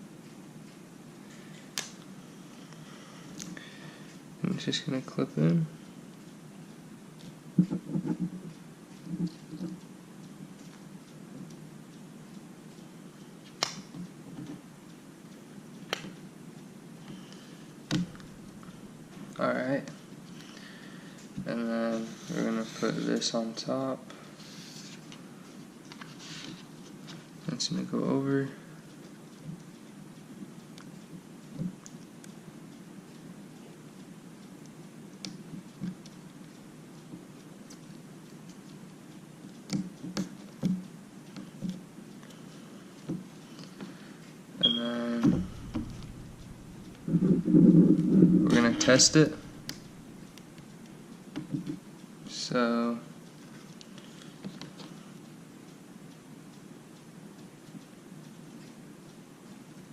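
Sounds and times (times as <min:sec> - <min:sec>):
steady low hum: 0:00.0 - 0:25.9, 0:26.6 - 0:59.9
heavier knock: 0:45.2 - 0:46.8.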